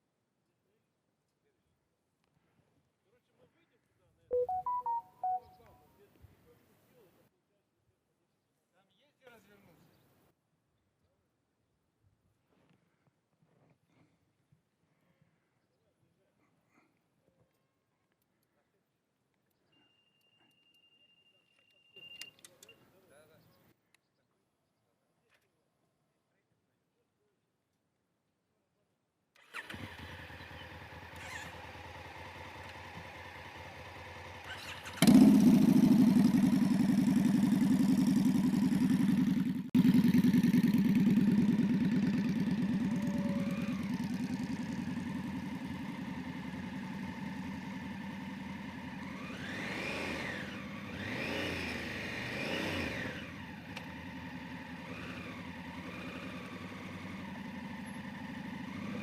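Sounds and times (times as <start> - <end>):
motorcycle engine revving: 29.4 - 59.0.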